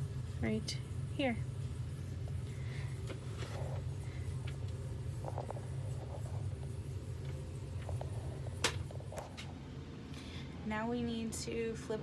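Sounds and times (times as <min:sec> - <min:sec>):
steady low hum: 0:00.0 - 0:12.0
faint handling clicks and rustles: 0:01.7 - 0:09.6.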